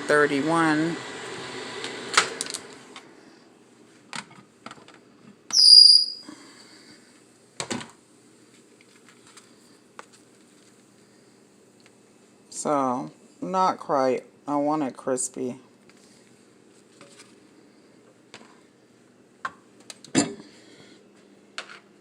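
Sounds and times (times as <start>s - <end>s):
microwave oven humming: 0.0s - 5.5s.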